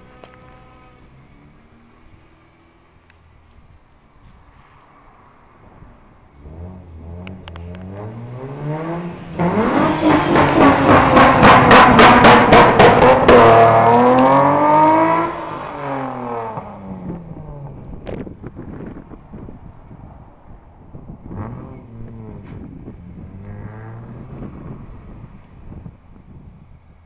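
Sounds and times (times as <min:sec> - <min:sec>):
car engine revving hard: 0:06.4 - 0:16.9.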